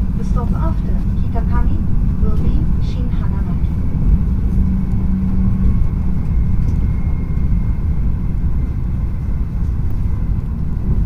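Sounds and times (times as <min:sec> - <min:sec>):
train cabin low rumble: 0:00.0 - 0:11.0
faint thin whine: 0:02.9 - 0:11.0.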